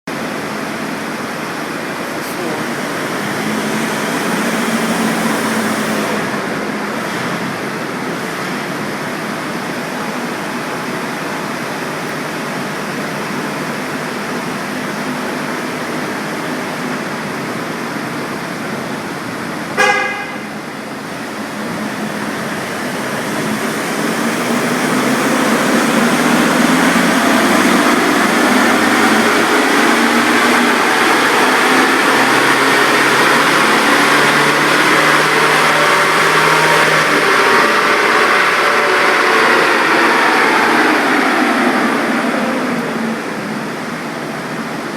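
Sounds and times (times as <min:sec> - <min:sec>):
diesel engine revving: 0:00.1 - 0:44.9
dynamometer rolling noise: 0:20.8 - 0:44.9.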